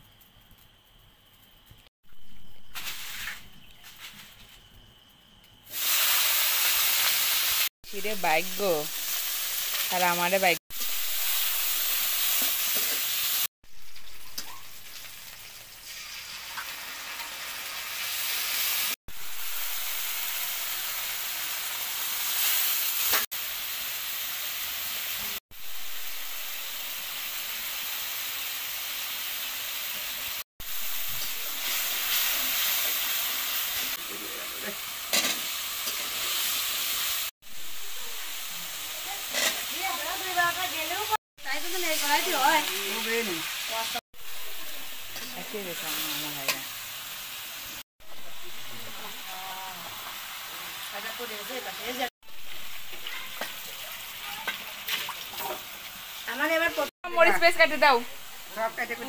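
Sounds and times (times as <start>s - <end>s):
oil sizzling in a pan: 0.0s - 59.0s
metal spatula scraping a pan: 39.3s - 39.7s.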